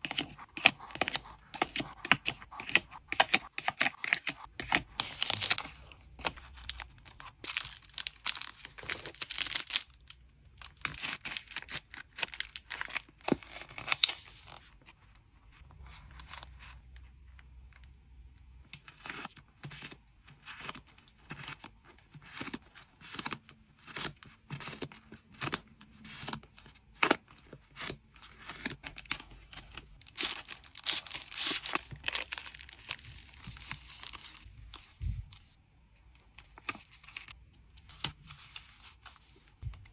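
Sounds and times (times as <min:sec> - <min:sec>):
packing material tearing and crinkling: 0:05.0 - 0:14.6, 0:28.5 - 0:35.4.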